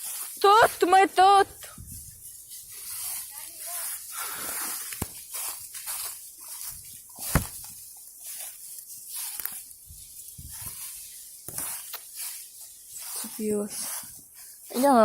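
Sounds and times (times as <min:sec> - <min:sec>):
footsteps through undergrowth: 0:04.7 - 0:09.1
branch snapping: 0:04.9 - 0:05.5, 0:07.2 - 0:07.8.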